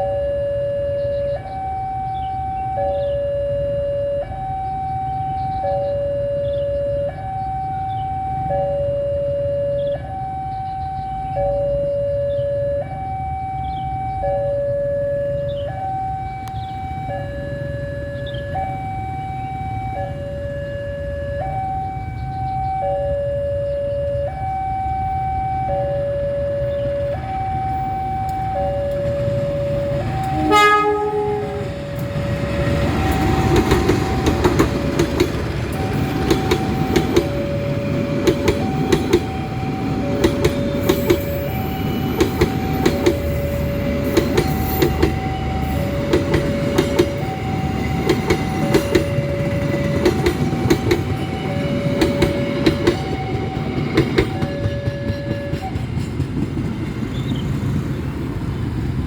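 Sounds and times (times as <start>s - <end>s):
level-crossing two-tone alarm: 0.0s - 56.9s
train wheels clacking on rails: 27.7s - 59.0s
train horn blast: 29.8s - 34.7s.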